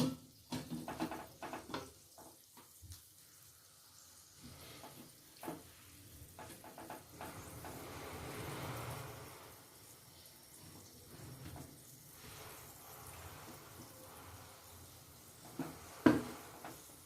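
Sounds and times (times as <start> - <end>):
soft hiss of steam: 0.2 - 17.0.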